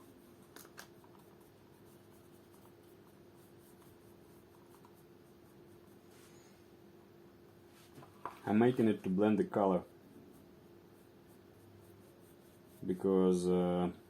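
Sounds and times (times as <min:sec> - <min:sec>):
faint steady hum: 0:00.0 - 0:14.0
faint rubbing on leather: 0:07.7 - 0:13.2.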